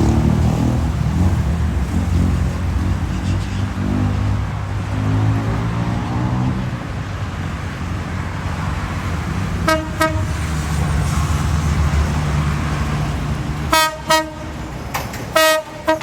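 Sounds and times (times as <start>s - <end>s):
diesel train engine rumbling: 0.0s - 16.0s
train horn toots: 9.6s - 10.6s, 13.7s - 14.7s, 15.3s - 16.0s.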